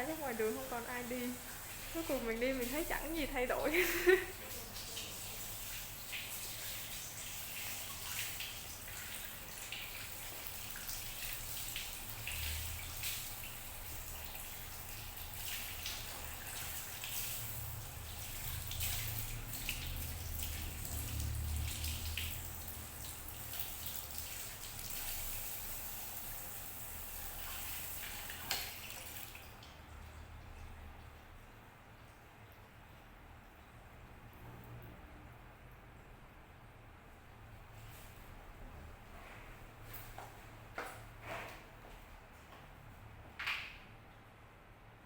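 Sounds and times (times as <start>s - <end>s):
water running from a tap: 0.0s - 31.4s.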